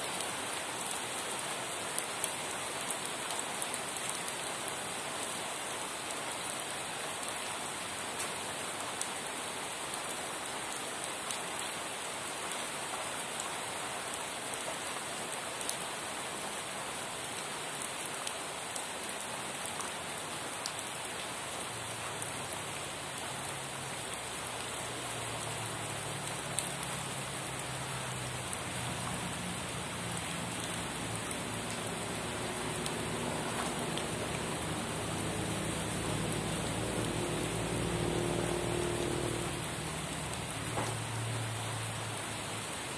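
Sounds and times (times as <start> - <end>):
rain falling on a surface: 0.0 - 42.9
raindrop taps: 30.0 - 37.1, 40.6 - 41.0.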